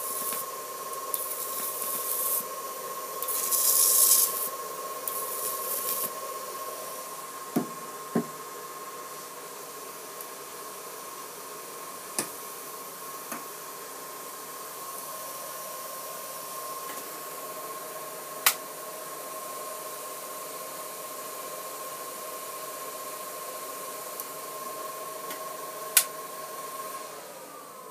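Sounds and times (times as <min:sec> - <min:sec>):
high voltage hiss and whine: 0:00.0 - 0:20.3
sharp electric snaps: 0:03.2 - 0:04.5.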